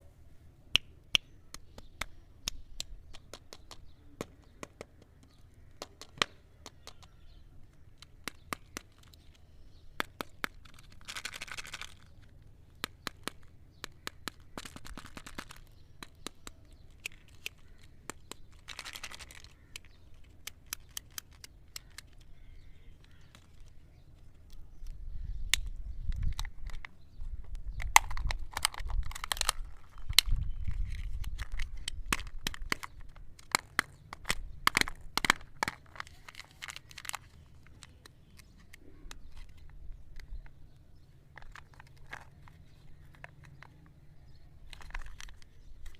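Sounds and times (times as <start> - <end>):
candy wrappers crinkling: 10.0 - 24.6, 27.8 - 40.3, 41.3 - 45.9.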